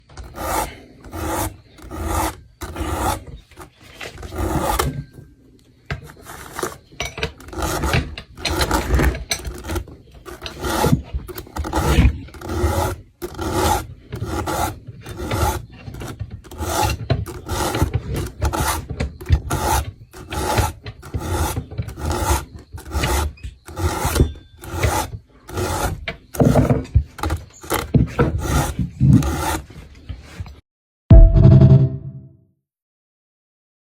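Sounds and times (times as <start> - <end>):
file rasping on chainsaw chain: 0.1 - 5.1, 6.0 - 29.8.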